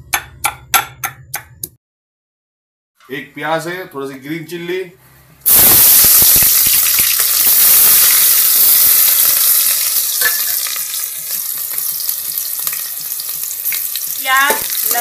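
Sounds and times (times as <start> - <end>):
onion sizzling in hot oil: 5.4 - 15.0.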